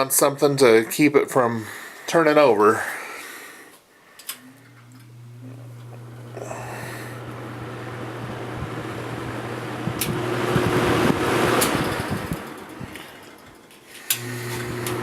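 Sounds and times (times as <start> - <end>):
box fan running: 4.4 - 15.0
fan switch clicking: 9.9 - 10.7, 11.5 - 13.1, 14.0 - 15.0.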